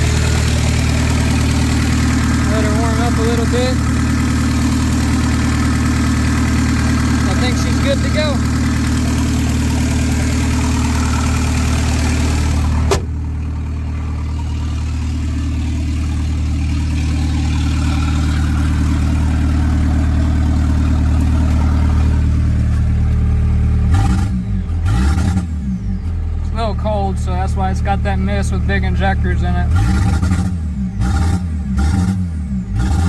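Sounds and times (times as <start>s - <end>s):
diesel engine idling: 0.0s - 32.8s.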